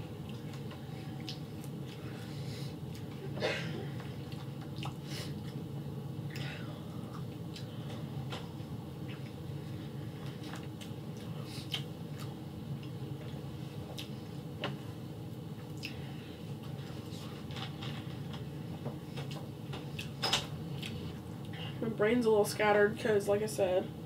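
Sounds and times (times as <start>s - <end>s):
low room hum: 0.0s - 24.0s
chewing with wet mouth clicks: 0.2s - 2.0s, 2.9s - 3.2s, 4.2s - 5.6s, 10.4s - 14.2s, 15.6s - 16.0s, 19.2s - 21.6s.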